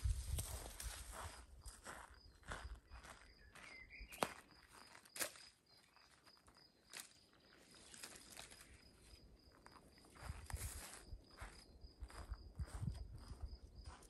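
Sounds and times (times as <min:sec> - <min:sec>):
footsteps on forest ground: 0:00.0 - 0:14.0.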